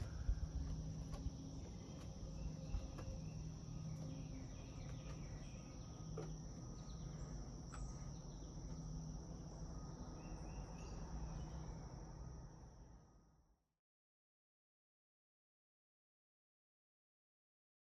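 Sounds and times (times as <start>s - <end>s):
low background rumble: 0.0s - 12.6s
crickets trilling: 0.0s - 13.2s.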